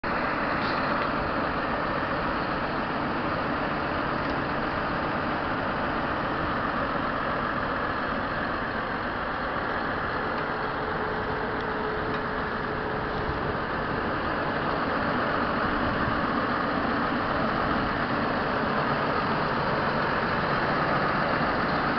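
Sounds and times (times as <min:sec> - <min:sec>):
tractor diesel engine running: 0:00.0 - 0:21.9.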